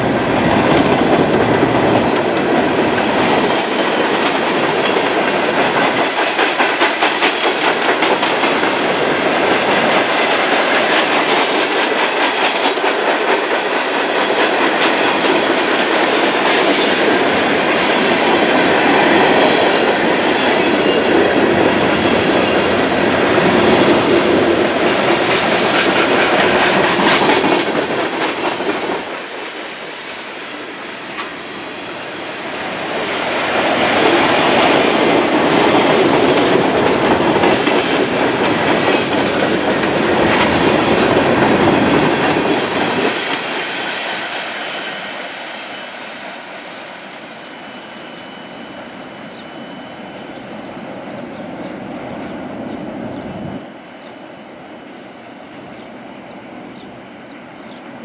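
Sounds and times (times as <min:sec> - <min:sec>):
train wheels clacking over rail joints: 0:00.0 - 0:31.5, 0:32.4 - 0:45.1.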